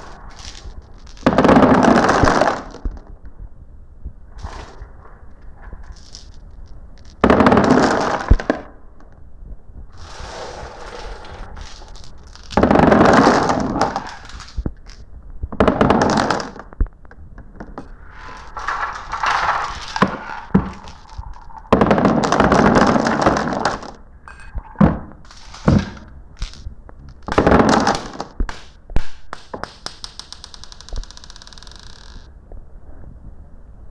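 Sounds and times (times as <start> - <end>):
marbles clicking: 18.1 - 22.5, 26.4 - 27.4
marbles rattling down a run: 18.2 - 23.8.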